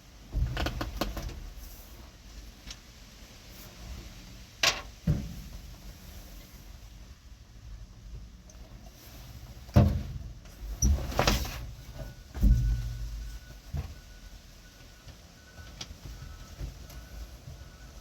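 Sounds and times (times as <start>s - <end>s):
knocks and thumps: 10.8s - 14.0s.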